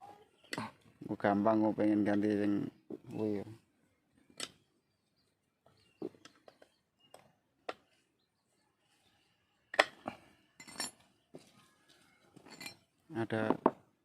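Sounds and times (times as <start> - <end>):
metal tools clinking: 10.5 - 11.1, 11.9 - 13.0.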